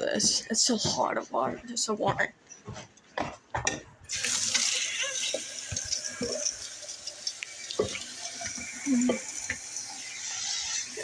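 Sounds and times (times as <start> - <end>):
tap water running into cup: 4.1 - 11.0.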